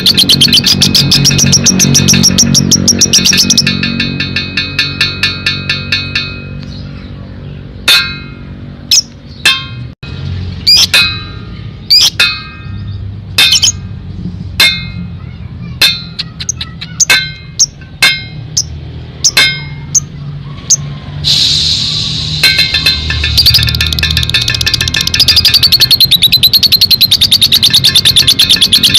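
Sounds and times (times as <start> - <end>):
lovebird chirping: 0.0 - 3.8, 10.6 - 11.0, 11.6 - 13.8, 22.5 - 28.9.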